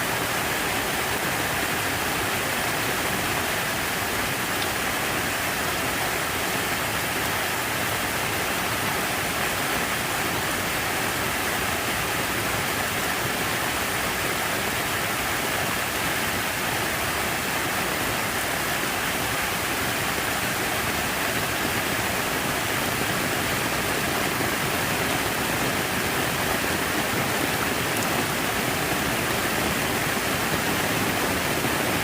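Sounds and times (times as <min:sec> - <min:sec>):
water feature splashing: 0:00.0 - 0:32.0.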